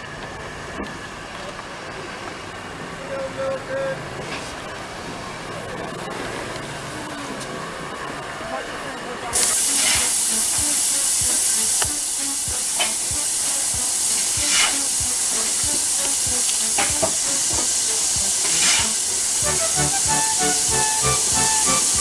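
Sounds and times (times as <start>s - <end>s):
steam locomotive hissing: 9.2s - 22.0s.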